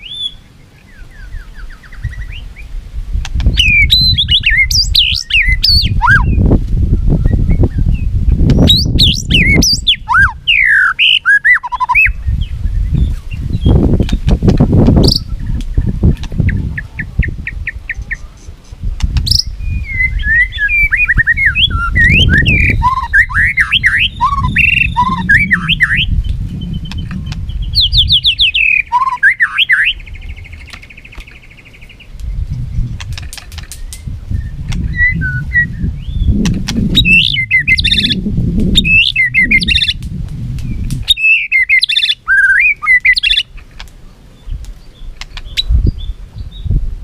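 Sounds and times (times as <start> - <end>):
bird singing whistles and trills: 0.0 - 2.7, 3.4 - 14.3, 15.0 - 18.5, 19.2 - 33.0, 33.7 - 40.0, 40.6 - 43.5
low rumble: 21.7 - 28.4, 32.2 - 41.1.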